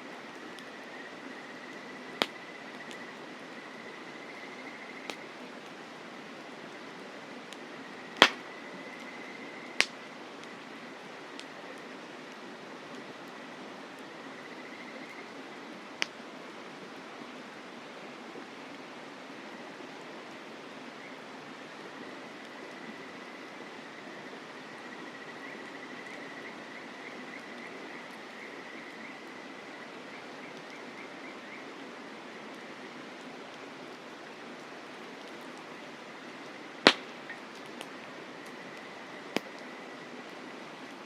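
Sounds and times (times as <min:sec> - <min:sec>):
mountain stream flowing: 0:00.0 - 0:14.5, 0:25.8 - 0:41.0
campfire pop: 0:05.0 - 0:05.3, 0:08.2 - 0:09.0, 0:09.7 - 0:10.0, 0:36.8 - 0:38.1, 0:39.3 - 0:39.6.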